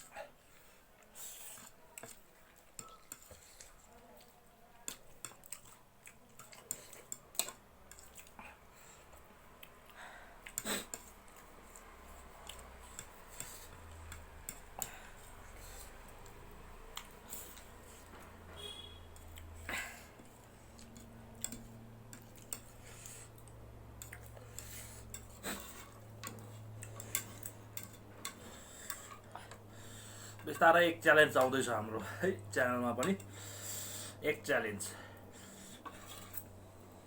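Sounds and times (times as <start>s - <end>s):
utensils clicking against dishes: 24.0s - 29.6s, 33.0s - 33.3s.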